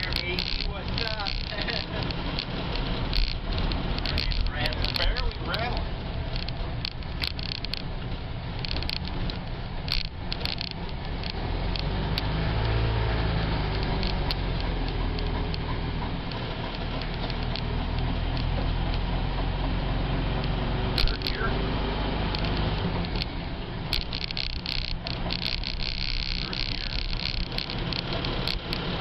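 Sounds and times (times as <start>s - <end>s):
clicks and rattles: 0.0s - 21.5s, 22.1s - 29.0s
van engine rumbling: 0.0s - 29.0s.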